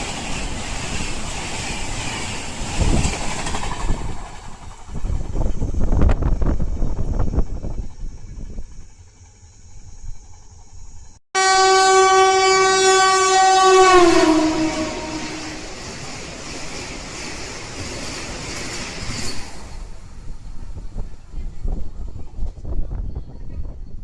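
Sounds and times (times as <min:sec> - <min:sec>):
train passing with rail clatter: 0:00.0 - 0:24.0
train horn blast: 0:11.4 - 0:15.8.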